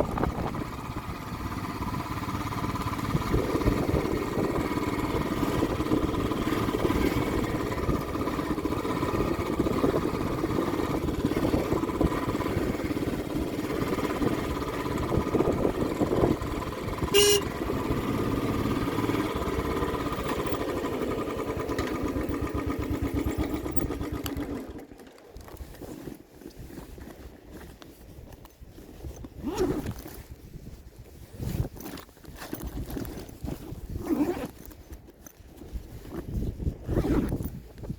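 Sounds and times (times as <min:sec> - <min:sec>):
motorcycle engine running: 0:00.0 - 0:25.4
horn beep: 0:17.1 - 0:17.6.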